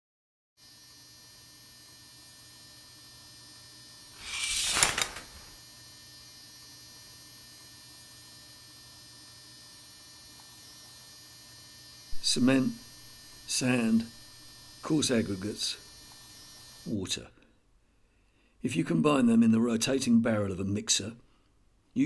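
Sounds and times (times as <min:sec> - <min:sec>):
sharp click: 0:04.2 - 0:05.6.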